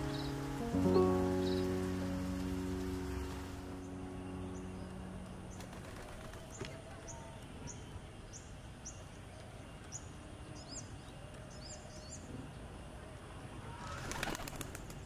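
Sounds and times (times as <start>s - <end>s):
background music: 0.0s - 6.7s
faint outdoor noise: 0.0s - 15.0s.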